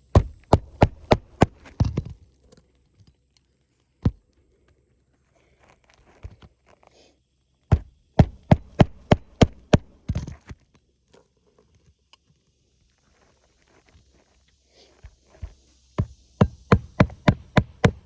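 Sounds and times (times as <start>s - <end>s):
hammer striking roof shingles: 0.1s - 2.0s, 7.7s - 10.3s, 16.4s - 18.0s.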